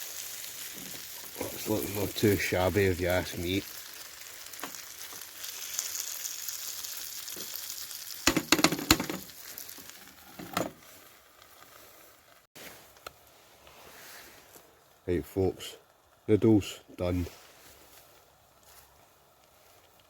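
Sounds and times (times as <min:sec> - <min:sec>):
paste sizzling in a pan: 0:00.0 - 0:12.7
sharp knocks against a pan: 0:08.3 - 0:09.2.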